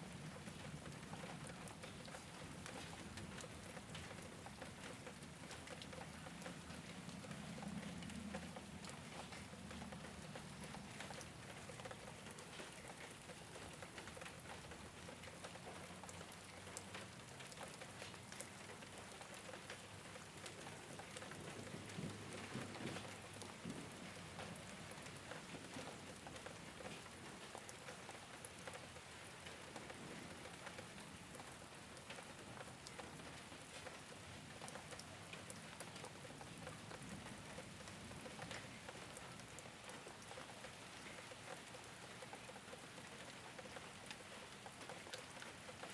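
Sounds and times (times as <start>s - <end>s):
rain on a roof: 0.0s - 45.9s.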